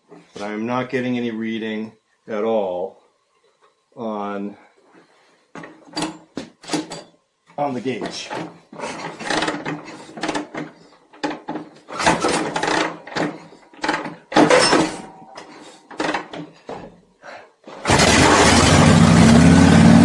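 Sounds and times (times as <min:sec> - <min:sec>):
knocks and clatter of bike work: 0:05.5 - 0:07.2, 0:08.0 - 0:17.0
motorcycle engine running: 0:17.9 - 0:20.0.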